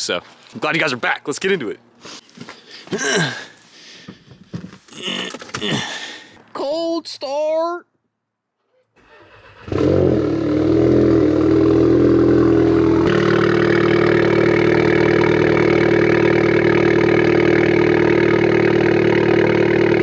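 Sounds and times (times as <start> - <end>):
car engine cold start and idle: 8.6 - 20.0.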